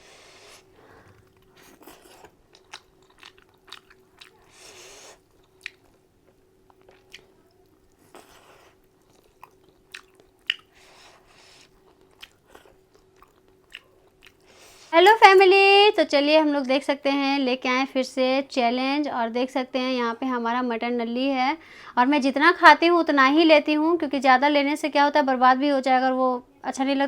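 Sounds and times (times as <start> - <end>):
faint steady hum: 0.0 - 27.0
person chewing food: 0.2 - 14.9
wet mouth clicks and smacks: 9.4 - 10.8.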